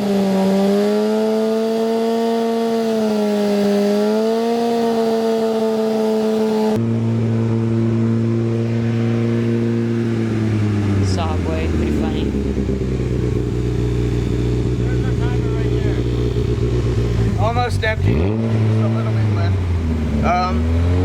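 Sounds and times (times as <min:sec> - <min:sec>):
car engine at fast idle: 0:06.9 - 0:20.6.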